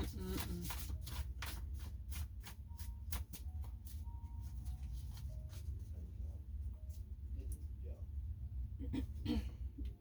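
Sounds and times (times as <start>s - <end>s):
cards being shuffled: 0.0s - 5.7s
steady low hum: 0.0s - 10.0s.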